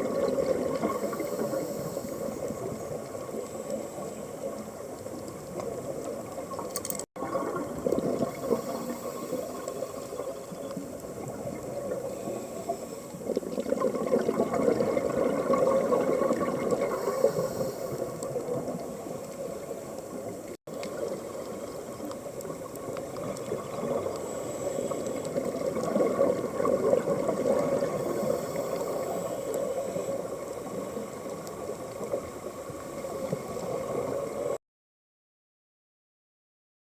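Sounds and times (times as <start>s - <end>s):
rushing water: 0.0s - 34.6s
underwater bubbling: 0.0s - 34.6s.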